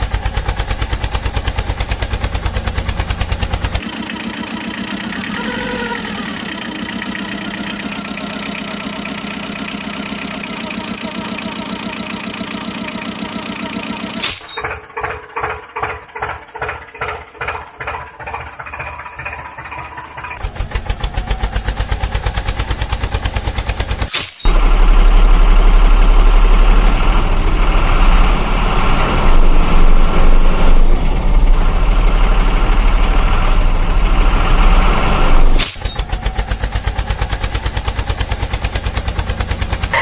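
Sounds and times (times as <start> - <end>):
engine cranking: 0.0 - 24.7, 34.3 - 40.0
engine running: 0.0 - 40.0.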